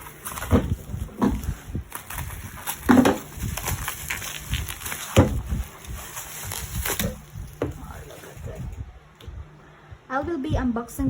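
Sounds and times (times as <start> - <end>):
packaging rustling and crinkling: 0.0 - 8.7.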